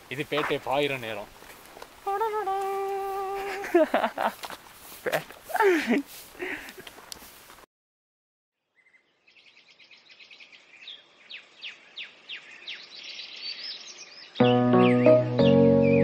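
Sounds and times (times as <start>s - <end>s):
birds chirping and singing: 8.7s - 16.0s.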